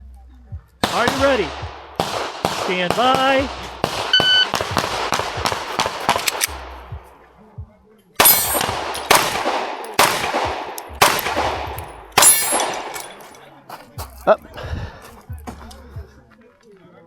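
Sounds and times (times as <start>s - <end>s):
pistol shots: 0.8s - 7.2s, 8.2s - 13.4s
shot timer beep: 4.1s - 4.5s
metallic ringing of targets: 8.2s - 10.3s, 11.0s - 13.4s.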